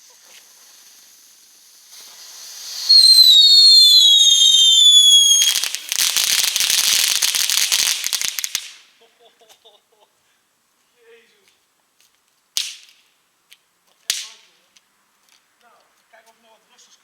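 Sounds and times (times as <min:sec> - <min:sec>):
firework shrill whistle: 0:00.0 - 0:07.3
firework rapid crackling: 0:00.0 - 0:08.9
firework hiss: 0:00.0 - 0:09.0.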